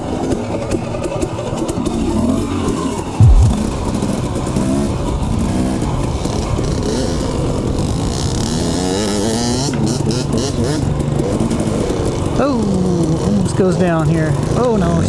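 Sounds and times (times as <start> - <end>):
heavy low thump: 3.2 - 4.3.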